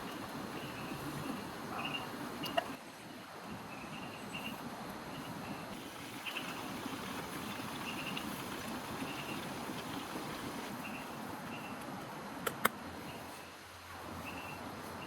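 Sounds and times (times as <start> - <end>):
rain pattering: 5.8 - 11.5.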